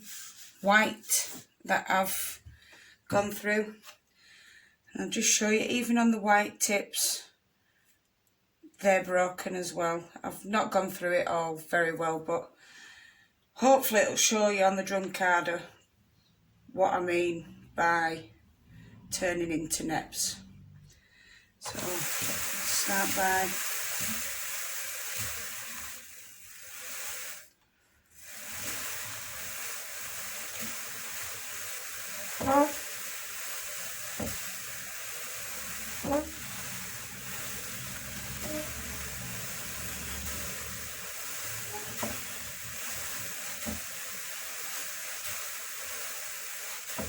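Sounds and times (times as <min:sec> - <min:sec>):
drum carder scratchy hiss: 0:00.0 - 0:01.6, 0:21.6 - 0:27.5, 0:28.1 - 0:47.0.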